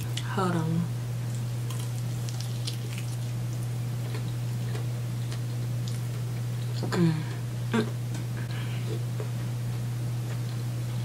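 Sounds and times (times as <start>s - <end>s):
steady low hum: 0.0s - 11.0s
person chewing: 1.4s - 6.9s.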